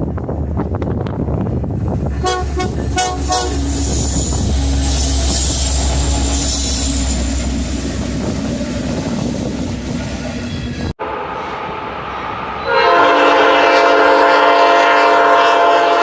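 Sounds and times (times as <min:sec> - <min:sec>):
passing train rumble: 0:00.0 - 0:16.0
rail noise hiss: 0:01.7 - 0:15.2
train horn toots: 0:02.2 - 0:07.5, 0:12.6 - 0:16.0.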